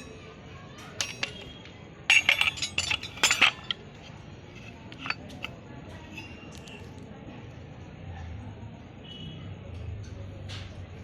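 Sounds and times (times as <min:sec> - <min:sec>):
metal clinking and rattling: 0:01.0 - 0:05.6.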